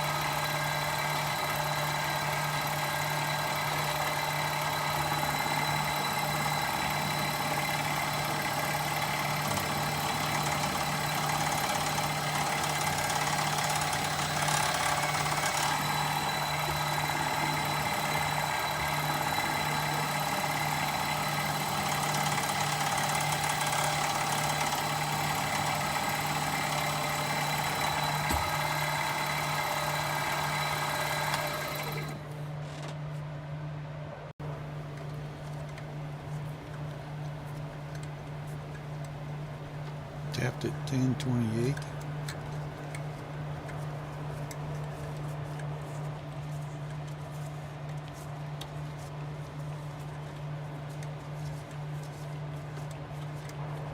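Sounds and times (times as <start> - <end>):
machine tool motor whining: 0.0 - 32.3.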